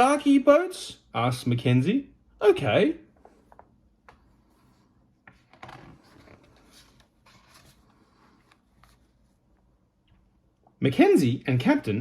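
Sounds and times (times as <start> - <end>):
book page turning: 3.5 - 9.6.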